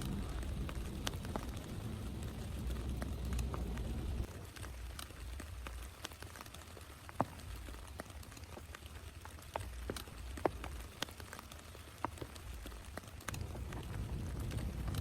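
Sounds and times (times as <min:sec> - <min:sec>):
steady low rumble: 0:00.0 - 0:04.3, 0:13.4 - 0:15.0
faint hiss: 0:00.0 - 0:15.0
raindrops ticking on a surface: 0:00.0 - 0:15.0.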